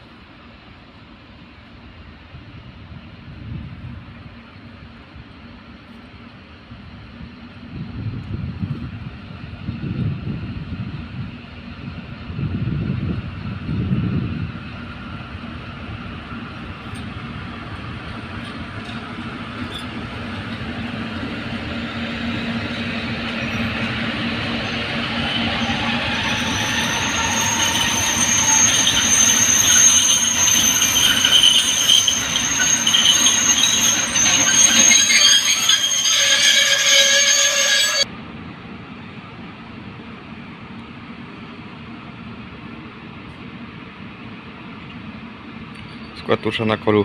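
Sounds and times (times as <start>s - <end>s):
train wheel and rail noise: 0.0s - 47.0s
high steady wheel squeal: 16.4s - 38.1s, 45.8s - 46.4s.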